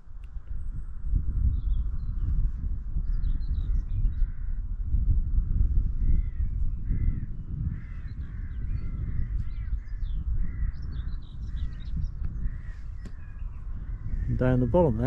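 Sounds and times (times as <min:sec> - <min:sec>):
wind buffeting microphone: 0:00.0 - 0:15.0
small birds chirping: 0:00.6 - 0:04.4, 0:06.0 - 0:15.0
crows cawing: 0:06.2 - 0:09.7.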